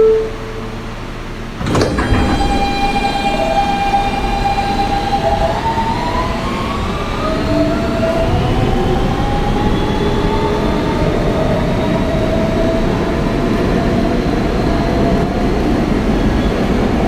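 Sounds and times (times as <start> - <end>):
traction motors whining: 0.0 - 17.0
train wheels rumbling: 0.0 - 17.0.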